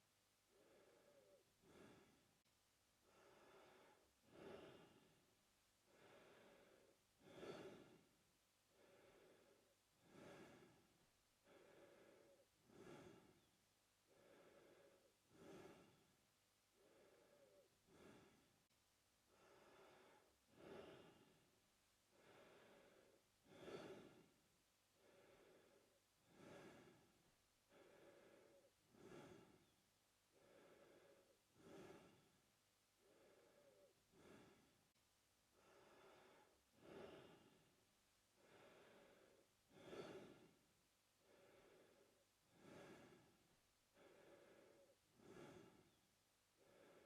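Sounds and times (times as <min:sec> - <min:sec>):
man breathing through mouth: 0:16.8 - 0:18.5, 0:22.1 - 0:24.3, 0:25.0 - 0:27.1, 0:27.7 - 0:32.4, 0:33.0 - 0:34.8, 0:35.5 - 0:37.7, 0:38.4 - 0:40.6, 0:41.2 - 0:46.0.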